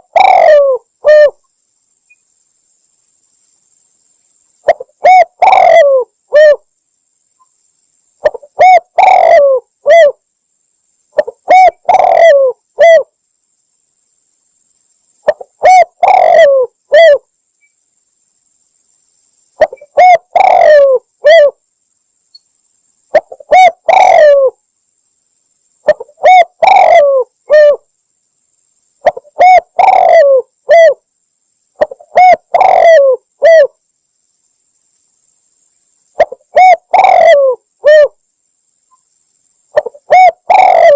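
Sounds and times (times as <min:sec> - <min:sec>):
dove cooing: 0:00.0 - 0:01.4, 0:04.7 - 0:06.7, 0:08.2 - 0:10.2, 0:11.2 - 0:13.1, 0:15.2 - 0:17.3, 0:19.6 - 0:21.6, 0:23.1 - 0:24.6, 0:25.8 - 0:27.9, 0:29.0 - 0:31.0, 0:31.8 - 0:33.8, 0:36.2 - 0:38.2, 0:39.8 - 0:40.9.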